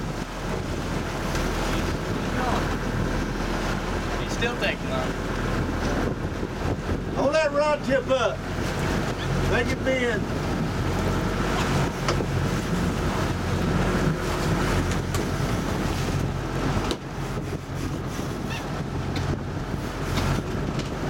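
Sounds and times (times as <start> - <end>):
boat motor running: 0.0 - 21.0
water around hull: 0.0 - 21.0
wind on microphone: 0.0 - 21.0.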